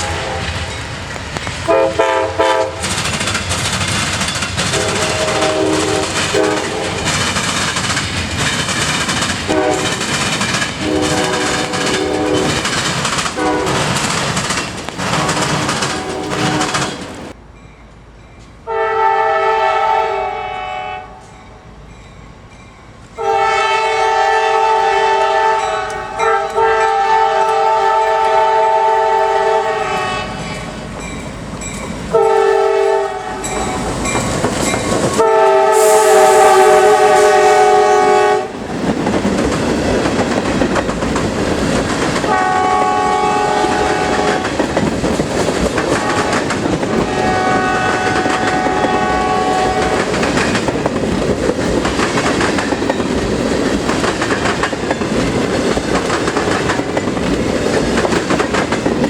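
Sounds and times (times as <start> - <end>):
locomotive air horn: 0.0 - 0.7, 1.7 - 2.9, 4.7 - 7.1, 9.5 - 10.0, 10.8 - 12.6, 13.4 - 14.0, 15.1 - 17.1, 18.7 - 21.4, 23.2 - 30.7, 32.1 - 33.9, 35.2 - 38.6, 42.3 - 44.6, 45.9 - 50.1
train wheels clattering on rails: 0.0 - 18.6, 22.0 - 59.0.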